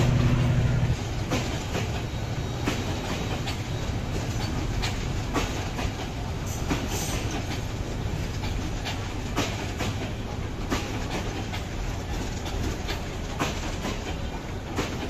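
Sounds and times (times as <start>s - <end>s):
train rumbling along track: 0.0s - 15.0s
wheels clacking over rail joints: 0.0s - 15.0s.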